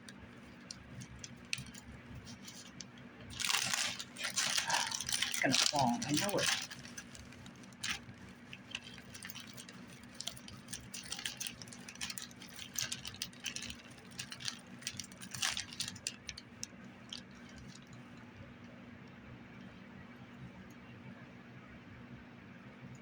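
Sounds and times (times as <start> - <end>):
crinkly material rustling: 0.0 - 18.2.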